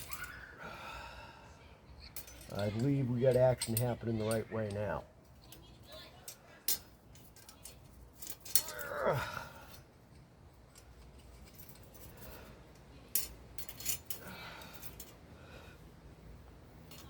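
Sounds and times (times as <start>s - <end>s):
metal tools clicking: 2.0s - 5.7s, 6.6s - 9.0s, 9.7s - 15.2s.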